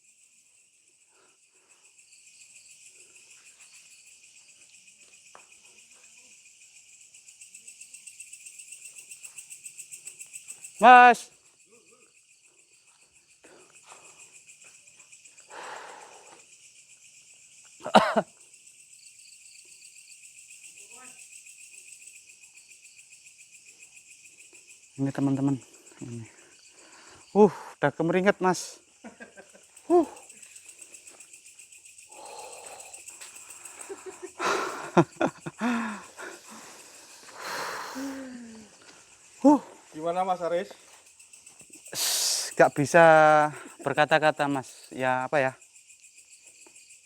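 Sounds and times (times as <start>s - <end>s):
crickets chirping: 0.0s - 47.0s
faint high whine of insects: 0.0s - 47.0s
man breathing hard: 13.4s - 14.5s, 15.4s - 16.5s, 25.7s - 27.8s, 32.0s - 39.9s
rustle: 29.1s - 43.8s
man groaning: 29.9s - 30.2s.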